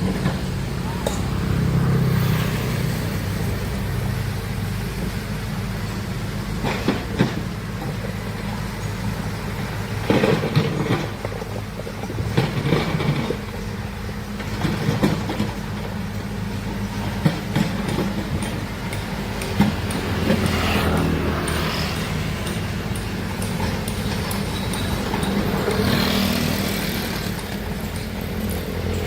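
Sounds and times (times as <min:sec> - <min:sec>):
excavator diesel engine running: 0:00.0 - 0:29.0
metallic clanks and knocks: 0:17.2 - 0:26.7.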